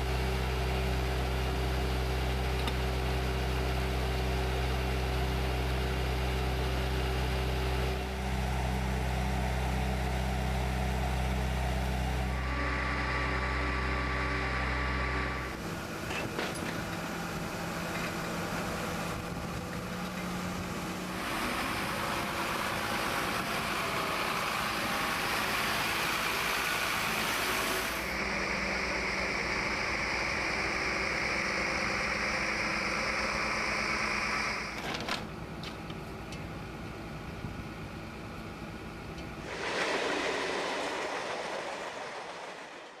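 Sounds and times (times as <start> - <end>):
truck engine running: 0.0 - 43.0
surging noise: 39.4 - 43.0.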